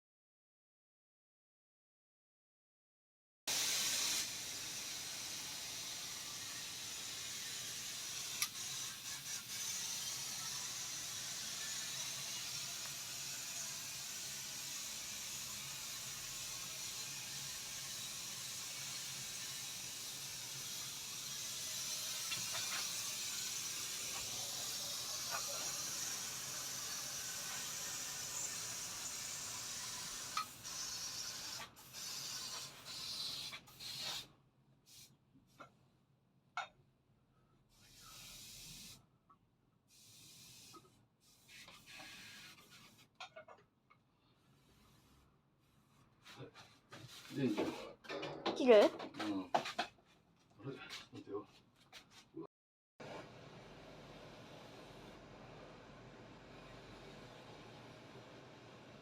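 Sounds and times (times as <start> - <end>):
paint sprayer hissing: 3.5 - 10.3, 21.3 - 34.2.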